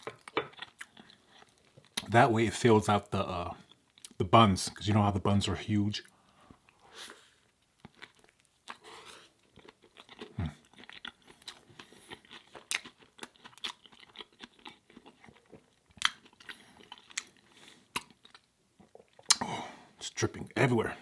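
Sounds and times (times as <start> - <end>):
wet chewing with mouth smacks: 0.0 - 2.1, 7.4 - 19.4.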